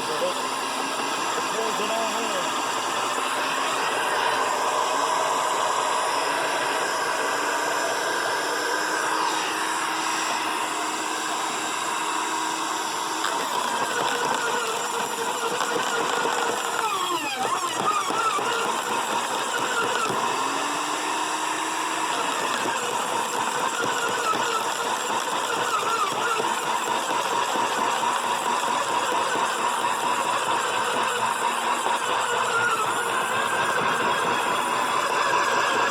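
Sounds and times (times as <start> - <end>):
wood chipper chewing branches: 0.0 - 35.9.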